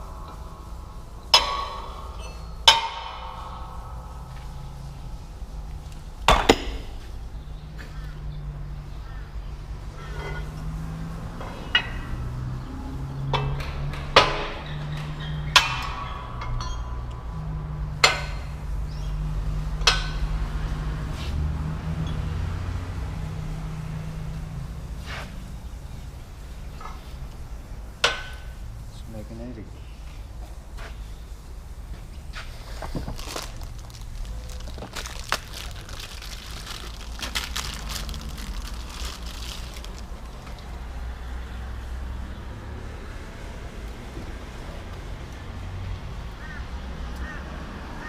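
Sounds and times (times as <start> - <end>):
metal tools clinking on metal: 0.0 - 7.1, 10.0 - 10.6, 15.2 - 17.2
steady low hum: 0.0 - 13.3.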